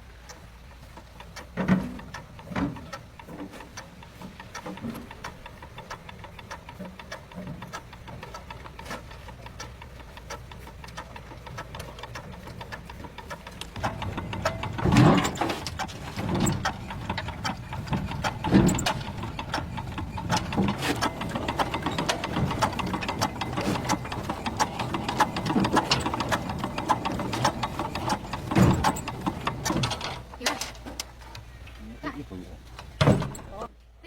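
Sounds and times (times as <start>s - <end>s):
mechanical clicking and clatter: 0.0s - 31.7s
low hum: 0.0s - 33.6s
loud thumps: 13.2s - 30.7s.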